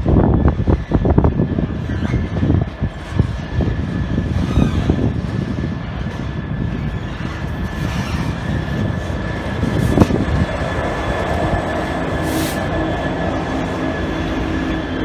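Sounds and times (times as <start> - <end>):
train rumbling: 0.0 - 15.0
short high hiss: 12.2 - 12.7.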